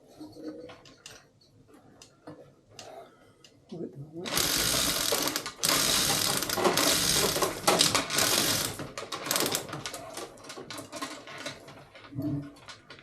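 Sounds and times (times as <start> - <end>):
metallic rattling and clicking: 4.3 - 13.0.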